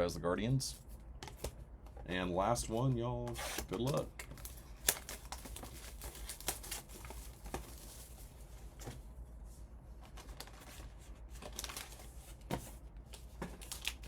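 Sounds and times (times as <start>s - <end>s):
wrapping tearing and crinkling: 3.4s - 8.3s, 10.0s - 12.2s, 13.1s - 14.0s.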